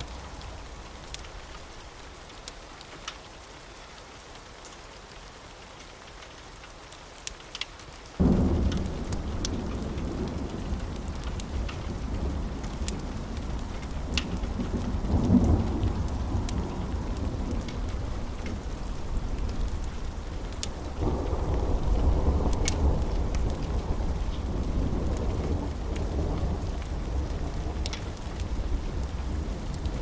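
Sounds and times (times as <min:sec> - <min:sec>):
steady rain: 0:00.0 - 0:30.0
low rolling thunder: 0:08.2 - 0:30.0.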